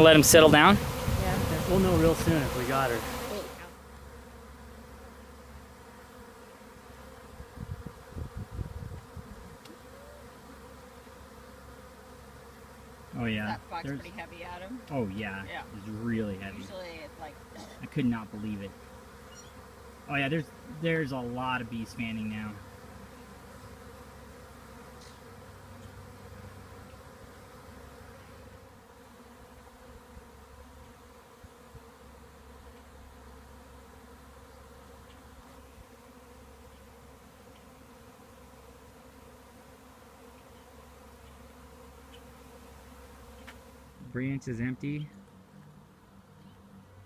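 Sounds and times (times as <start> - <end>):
bees buzzing: 0.0 - 47.0.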